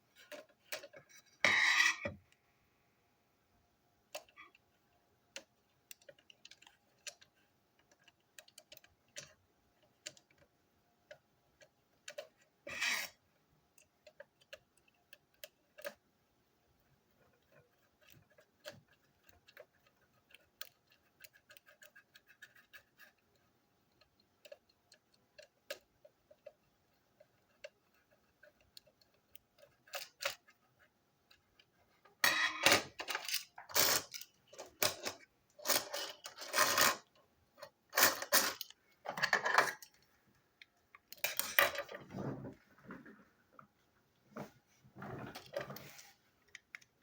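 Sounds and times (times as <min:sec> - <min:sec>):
plastic toy train parts clicking: 0:05.3 - 0:16.0, 0:17.2 - 0:40.0.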